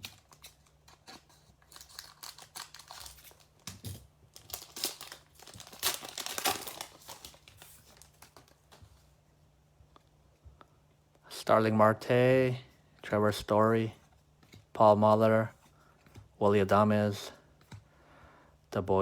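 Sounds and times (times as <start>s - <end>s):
foil pack tearing and crinkling: 0.0s - 8.6s.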